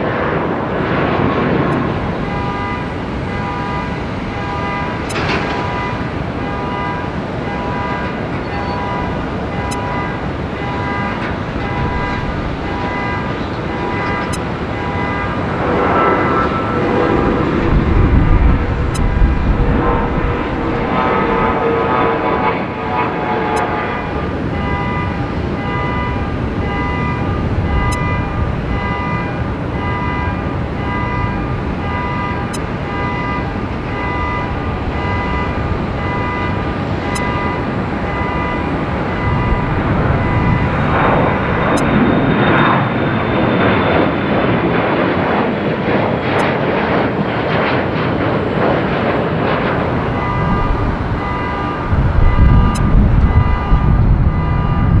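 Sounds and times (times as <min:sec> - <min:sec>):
jet rumble: 0:01.4 - 0:46.4, 0:49.5 - 0:55.0
jet engines whining: 0:01.4 - 0:47.9, 0:49.4 - 0:55.0
jet rush: 0:01.7 - 0:28.7.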